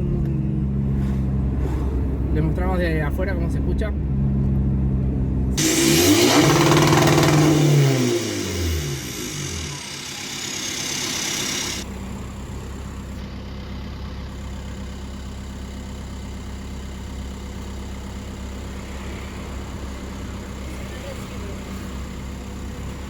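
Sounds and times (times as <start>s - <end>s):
turbo whine: 5.6s - 13.4s
car engine idling: 5.6s - 23.0s.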